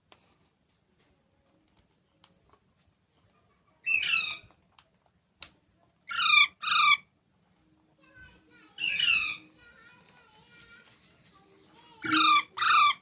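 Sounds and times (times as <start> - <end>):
parrot squawk: 3.8 - 4.4, 6.1 - 7.1, 8.8 - 9.5, 12.0 - 13.0.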